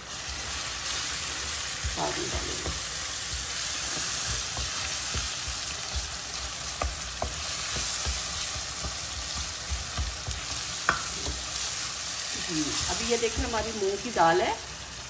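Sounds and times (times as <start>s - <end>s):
food sizzling in oil: 0.0s - 15.0s
spoon scraping and knocking pan: 0.9s - 11.9s.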